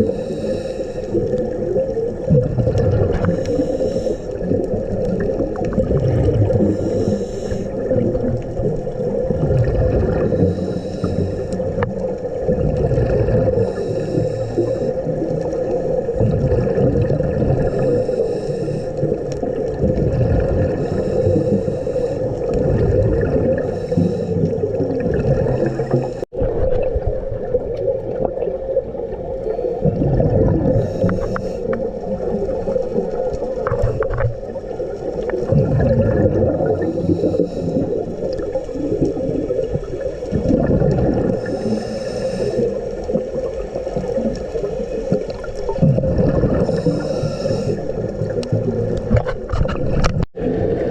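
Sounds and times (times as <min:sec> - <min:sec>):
scuba regulator inhale hiss: 0:00.0 - 0:01.4, 0:03.2 - 0:04.4, 0:06.6 - 0:07.9, 0:10.2 - 0:11.8, 0:13.5 - 0:15.6, 0:17.6 - 0:19.3, 0:20.7 - 0:22.5, 0:23.5 - 0:24.9, 0:30.7 - 0:32.0, 0:36.6 - 0:38.3, 0:41.3 - 0:43.0, 0:46.6 - 0:48.1
exhaled air bubbling underwater: 0:00.0 - 0:50.9
steady underwater hum: 0:00.0 - 0:50.9.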